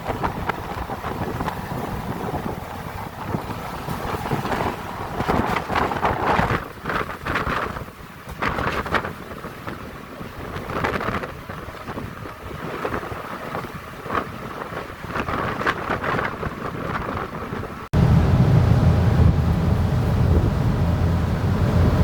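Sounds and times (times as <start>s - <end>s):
rough sea waves: 0.0s - 22.0s
wind gusting over microphone: 0.0s - 22.0s.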